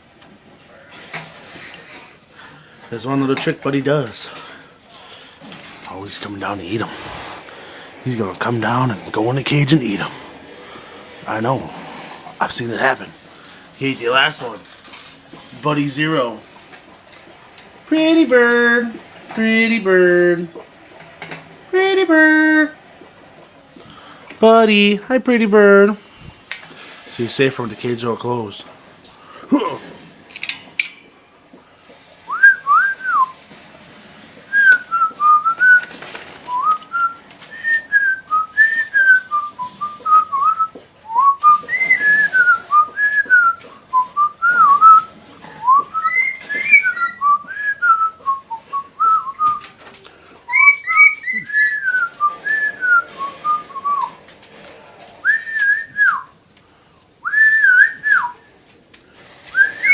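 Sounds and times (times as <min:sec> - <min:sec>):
person whistling a melody: 0:32.3 - 0:33.3, 0:36.5 - 0:49.6, 0:57.2 - 0:58.4.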